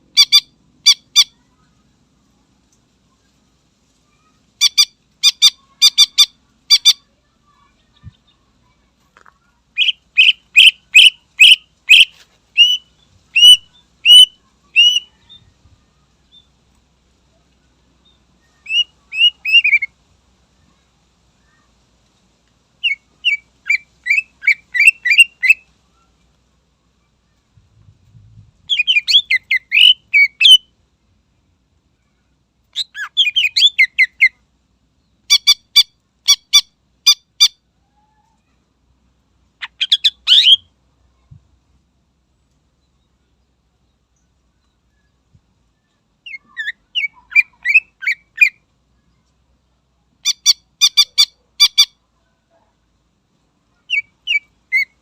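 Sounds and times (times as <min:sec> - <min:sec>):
bird singing loudly: 0:09.8 - 0:15.3, 0:28.7 - 0:30.7, 0:39.6 - 0:40.7, 0:53.9 - 0:55.0.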